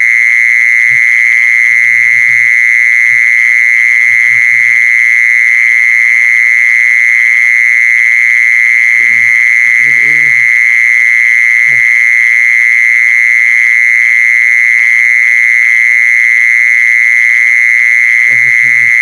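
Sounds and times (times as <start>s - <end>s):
insect trilling: 0.8s - 5.3s, 8.5s - 12.1s, 18.1s - 19.0s.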